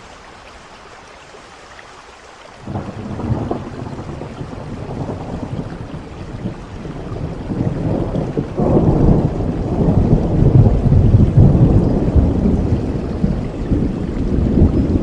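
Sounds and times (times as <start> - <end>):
steady rain: 0.0 - 15.0
thunder rolling: 2.6 - 15.0.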